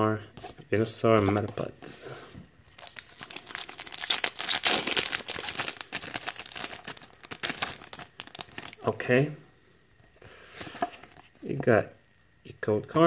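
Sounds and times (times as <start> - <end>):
foil wrapper crinkling and tearing: 2.7 - 8.9.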